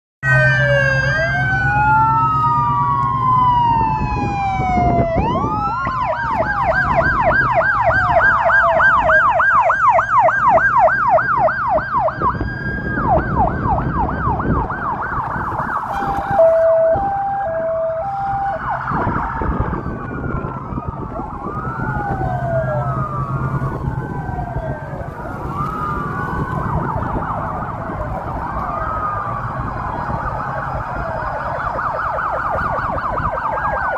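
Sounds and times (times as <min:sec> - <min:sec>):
emergency vehicle sirens wailing: 0:00.2 - 0:33.9.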